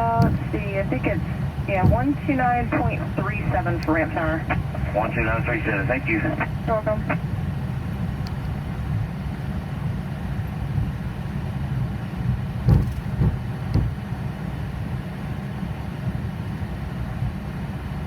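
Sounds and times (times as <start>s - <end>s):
dull thumps: 0.0s - 3.6s, 12.6s - 14.0s
aircraft engines low rumble: 0.0s - 18.0s.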